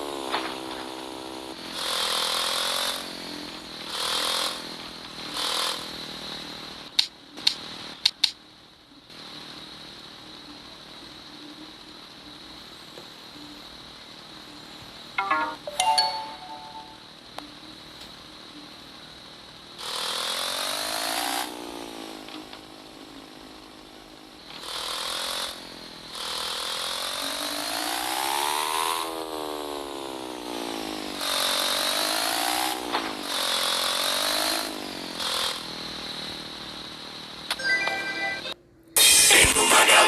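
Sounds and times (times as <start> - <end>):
motorcycle engine revving: 0.0 - 8.3, 17.7 - 37.5.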